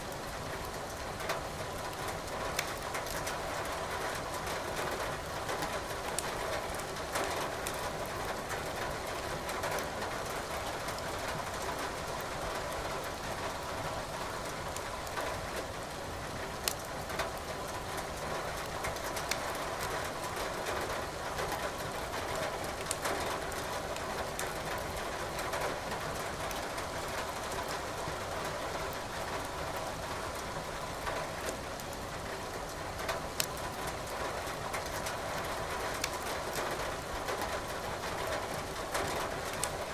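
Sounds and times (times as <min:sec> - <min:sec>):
rain pattering: 0:00.0 - 0:39.9
wood fire crackling: 0:01.9 - 0:03.2, 0:16.6 - 0:17.5, 0:18.7 - 0:19.4, 0:22.8 - 0:23.0, 0:33.3 - 0:34.2, 0:36.0 - 0:36.6.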